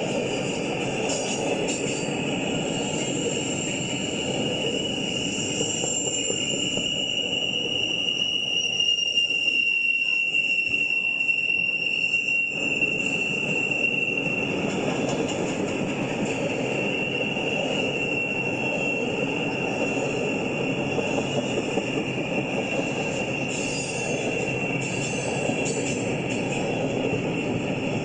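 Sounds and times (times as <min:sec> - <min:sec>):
freight train wheels rumbling: 0:00.0 - 0:28.0
high-pitched squeal: 0:00.3 - 0:15.0, 0:16.3 - 0:28.0.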